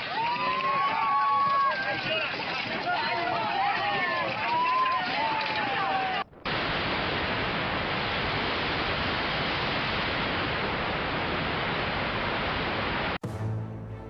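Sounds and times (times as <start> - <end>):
heavy water rushing: 5.9 - 13.2.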